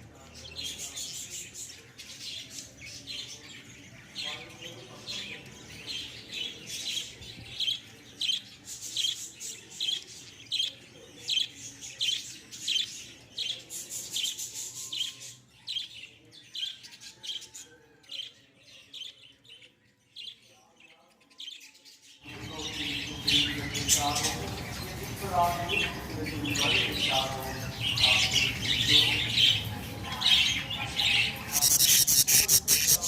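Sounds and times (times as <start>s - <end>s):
lovebirds shrill chirps: 26.4s - 33.0s.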